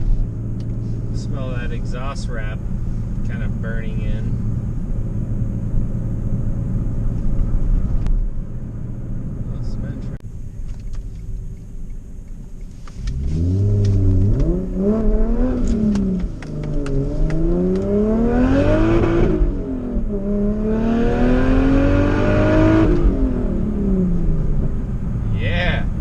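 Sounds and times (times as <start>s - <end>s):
car engine accelerating hard: 12.9s - 26.0s.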